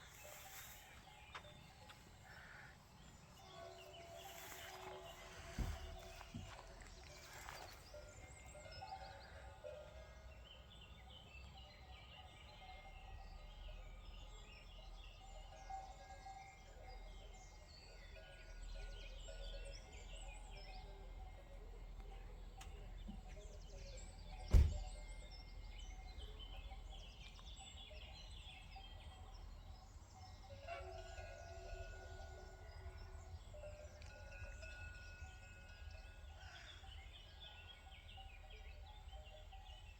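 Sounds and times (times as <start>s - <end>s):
birds chirping: 0.0s - 39.9s
sharp thump: 24.5s - 24.8s.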